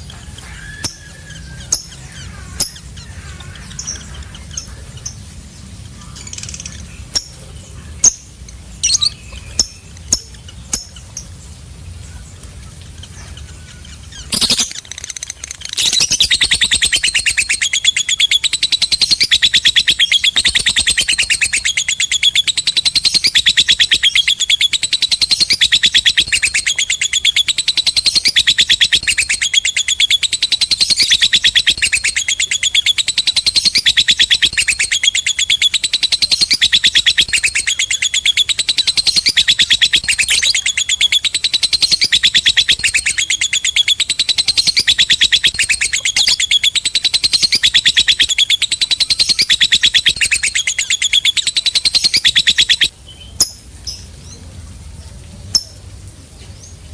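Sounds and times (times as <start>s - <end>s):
bird chattering trill: 0.0s - 11.4s, 12.0s - 54.1s.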